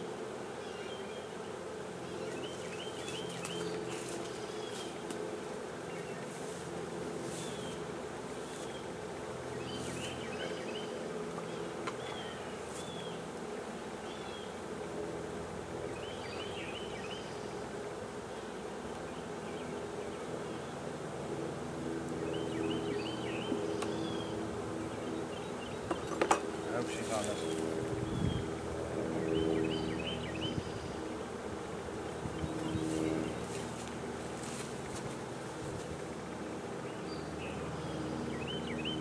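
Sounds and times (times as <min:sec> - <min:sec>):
honeybee swarm buzzing: 0:00.0 - 0:39.0.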